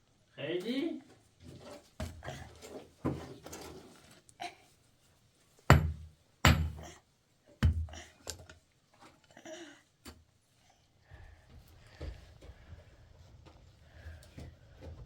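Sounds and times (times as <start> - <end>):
heavy thuds with ring-off: 5.7 - 6.9.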